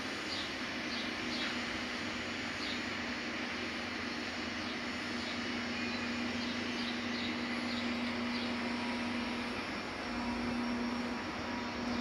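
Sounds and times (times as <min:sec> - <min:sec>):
electric train humming: 0:00.0 - 0:12.0.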